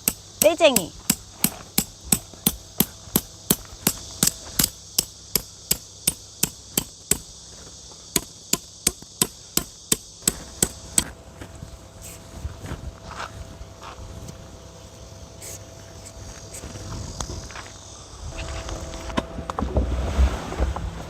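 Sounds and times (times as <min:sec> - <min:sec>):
hammer driving a tent peg: 0:00.0 - 0:07.3, 0:08.1 - 0:11.1
high insect drone: 0:00.0 - 0:21.0.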